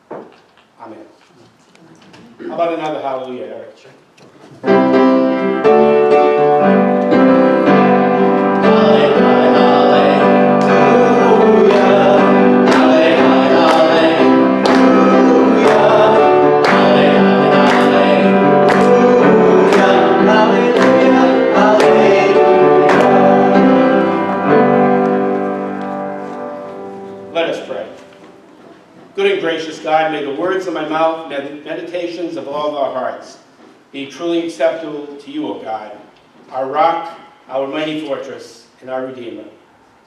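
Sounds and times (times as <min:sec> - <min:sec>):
piano chords: 0:04.6 - 0:30.1
voices singing: 0:07.6 - 0:25.4.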